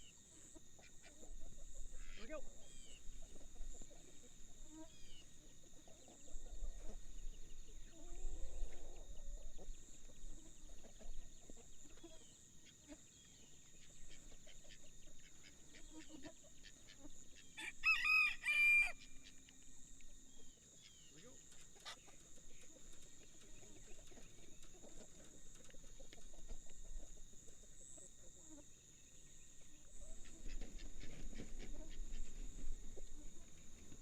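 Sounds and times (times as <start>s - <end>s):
rooster crowing: 17.6s - 19.2s.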